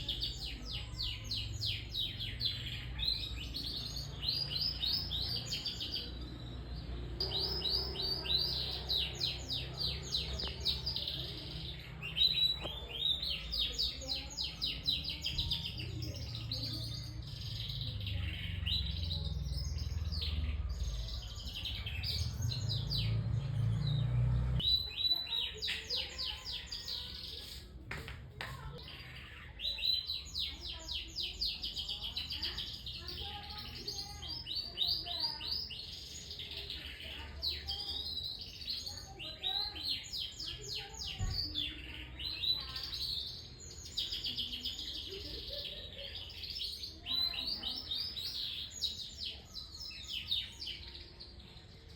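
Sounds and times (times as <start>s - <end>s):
canary singing trills: 0.0s - 27.6s.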